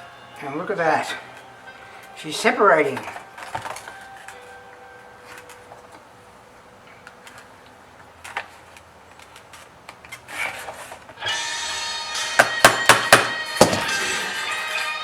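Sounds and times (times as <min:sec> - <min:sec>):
guitar music: 0:00.0 - 0:06.2, 0:11.2 - 0:15.0
sharp knocks: 0:12.4 - 0:14.0.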